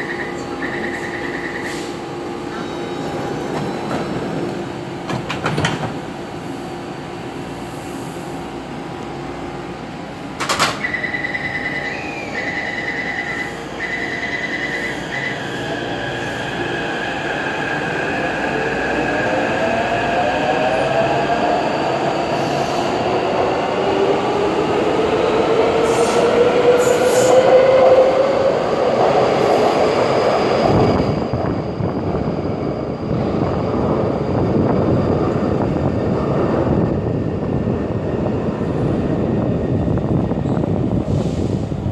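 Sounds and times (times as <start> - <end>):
rough train rumbling: 0.0 - 41.9.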